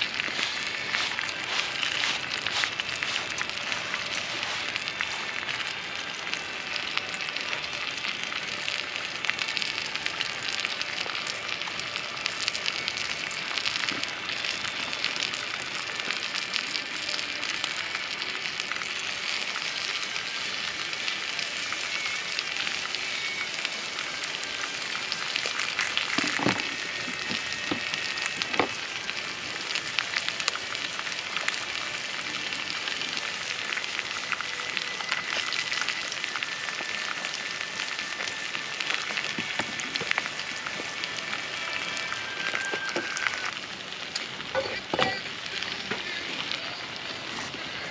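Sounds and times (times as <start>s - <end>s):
food sizzling and crackling in pan: 0.0s - 47.9s.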